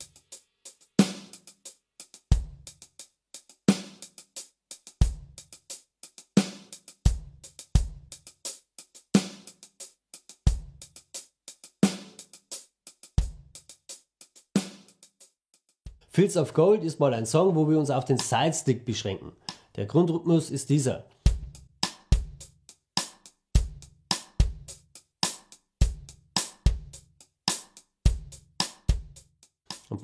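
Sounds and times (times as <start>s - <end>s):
hi-hat: 0.0s - 15.8s, 21.1s - 30.0s
snare drum: 0.0s - 16.6s, 17.4s - 18.7s, 21.1s - 30.0s
bass drum: 7.1s - 8.2s, 10.5s - 10.9s, 21.1s - 25.0s, 25.8s - 27.2s, 28.1s - 30.0s.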